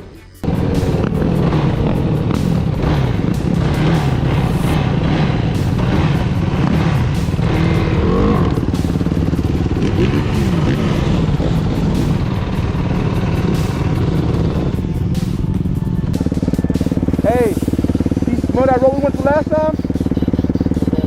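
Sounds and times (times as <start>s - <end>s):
dirt bike engine running: 0.4s - 21.0s.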